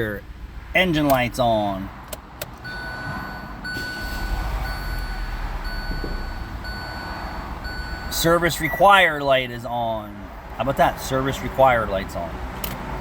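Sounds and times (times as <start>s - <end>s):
car engine rumble: 0.0s - 13.0s
dashboard warning chime: 2.6s - 9.3s.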